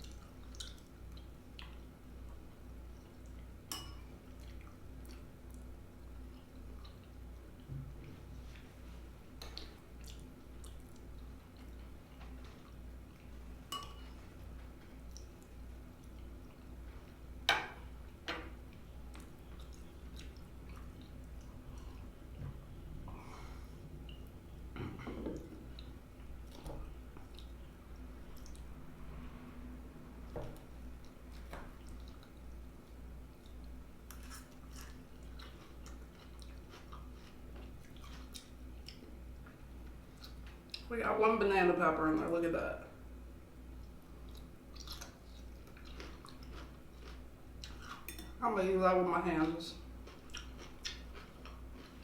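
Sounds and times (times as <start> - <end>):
chewing with wet clicks: 0.0 - 3.6, 4.2 - 8.7, 9.4 - 16.8, 18.0 - 22.4, 25.4 - 28.8, 30.2 - 40.9, 43.8 - 48.4, 49.8 - 52.0.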